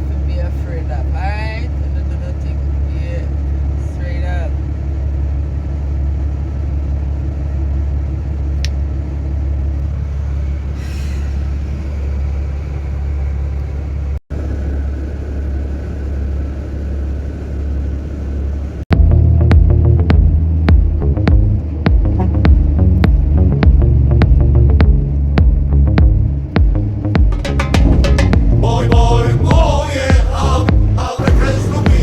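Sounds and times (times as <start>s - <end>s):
road noise: 0.0s - 32.0s
truck engine rumble: 0.0s - 32.0s
throbbing low hum: 18.9s - 32.0s.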